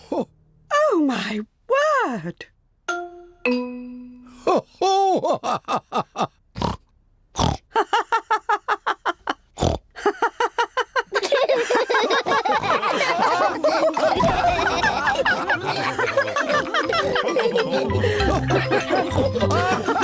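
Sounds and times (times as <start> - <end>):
cartoon pigs laughing and snorting: 7.7 - 20.0.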